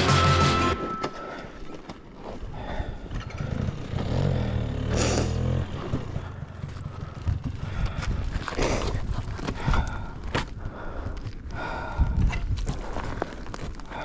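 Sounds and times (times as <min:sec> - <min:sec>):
dirt bike engine at low speed: 0:00.0 - 0:10.2
clatter and scraping on rocks: 0:05.8 - 0:11.5, 0:12.2 - 0:14.0.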